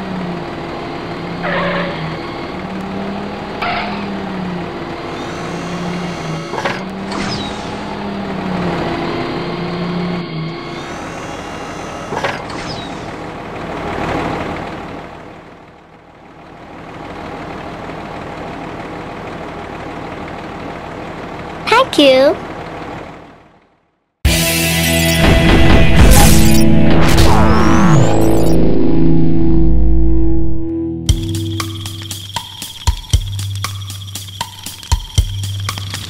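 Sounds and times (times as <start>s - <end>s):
cartoon truck engine: 0.0s - 36.0s
short high squeals: 5.0s - 7.9s, 10.5s - 13.2s.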